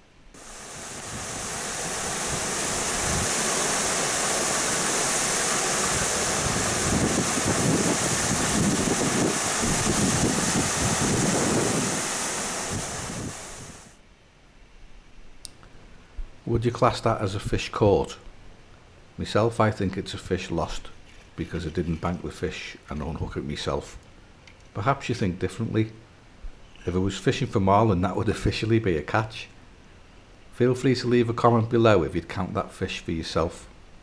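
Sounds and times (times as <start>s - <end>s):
wind buffeting microphone: 0.4s - 13.9s
running water rushing: 0.4s - 14.0s.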